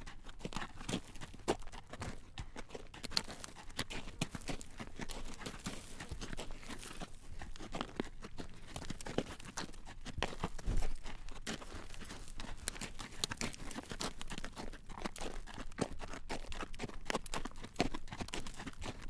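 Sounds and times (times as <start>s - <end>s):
horse hooves clip-clopping on road: 0.0s - 19.0s.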